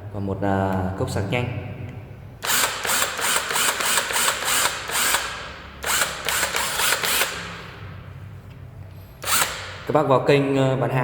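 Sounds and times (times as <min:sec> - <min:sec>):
impact wrench rattling: 0:02.4 - 0:07.9, 0:09.2 - 0:09.9.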